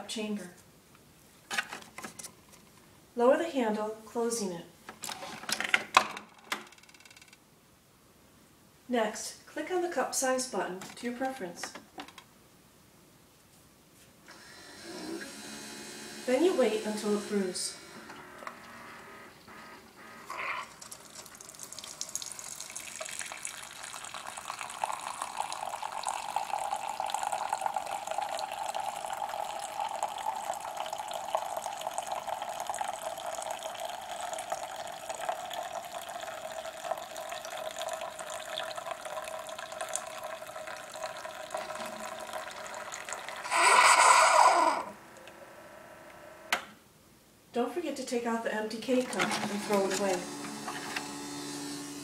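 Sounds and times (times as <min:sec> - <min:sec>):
coffee maker sputtering: 0:14.4 - 0:45.0, 0:49.0 - 0:52.0
coffee pouring into mug: 0:20.3 - 0:45.0.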